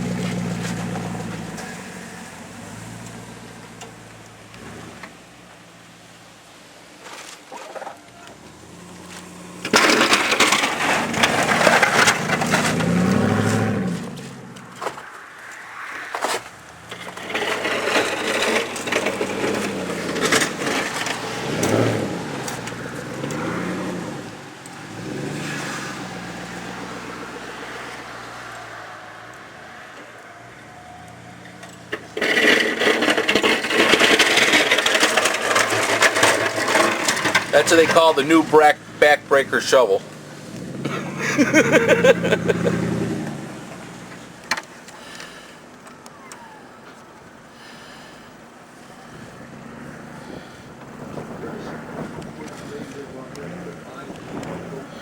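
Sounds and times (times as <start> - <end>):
truck engine revving: 0.0 - 5.4, 8.2 - 44.5, 48.9 - 55.0
snow crunching and scraping: 8.4 - 29.0, 31.9 - 44.4
engine idling: 30.9 - 43.0.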